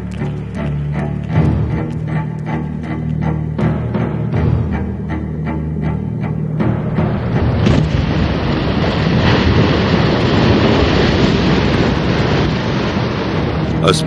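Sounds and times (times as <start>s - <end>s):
ocean waves and surf: 6.6s - 14.0s.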